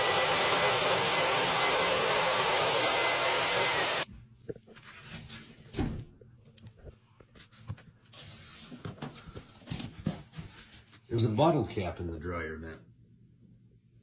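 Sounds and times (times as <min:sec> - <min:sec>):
vacuum rushing air: 0:00.0 - 0:04.1.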